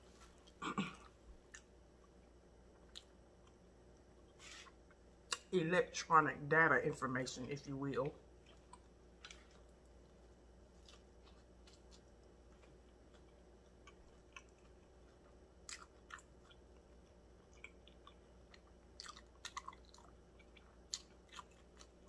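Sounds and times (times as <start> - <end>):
chewing food: 8.4 - 22.0.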